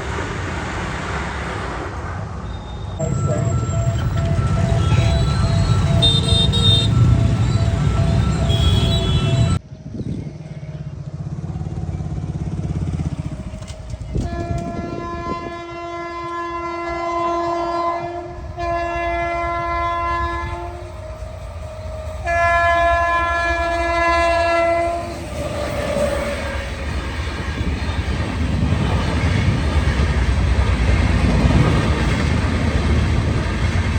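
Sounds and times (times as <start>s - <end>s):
passing train rumble: 0.0s - 33.9s
multi-tone train horn blasts: 3.0s - 9.6s, 14.1s - 28.2s.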